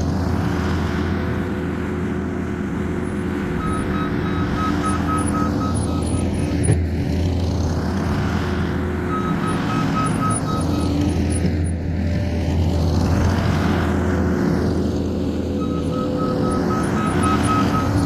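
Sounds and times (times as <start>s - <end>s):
diesel engine running: 0.0s - 18.0s
backup alarm beeping: 3.6s - 6.4s, 15.6s - 18.0s.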